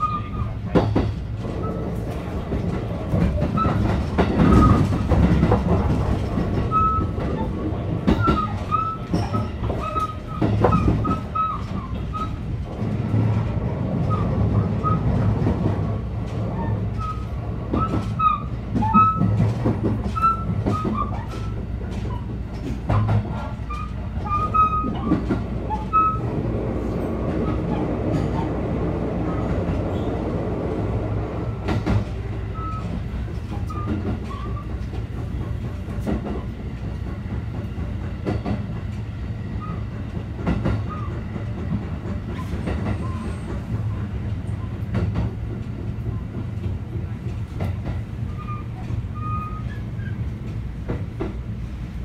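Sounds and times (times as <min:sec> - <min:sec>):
wheels rumbling on rail: 0:00.0 - 0:52.0
wheel squeals: 0:03.4 - 0:05.0, 0:06.7 - 0:12.5, 0:23.6 - 0:26.3, 0:32.5 - 0:34.7, 0:42.3 - 0:43.6, 0:48.3 - 0:50.3.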